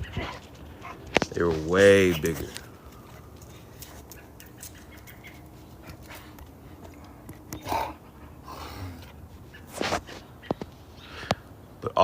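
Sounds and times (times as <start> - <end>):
dog panting or sniffing: 3.1 - 10.2.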